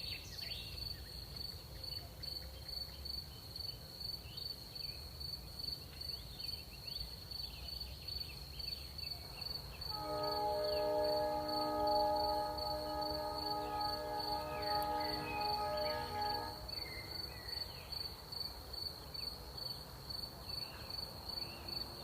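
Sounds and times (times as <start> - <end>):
crickets chirping: 0.1 - 22.0
sustained music chord: 9.9 - 17.1.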